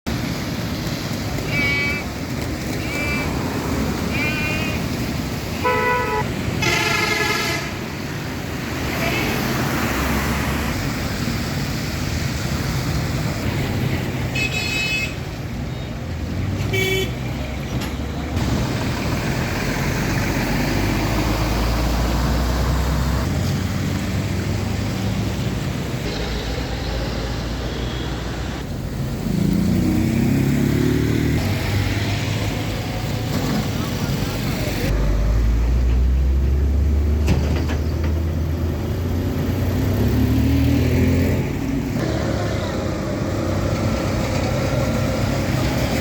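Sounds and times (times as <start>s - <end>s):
street traffic engines: 0.0s - 46.0s
high-pitched horn toots: 5.6s - 7.8s.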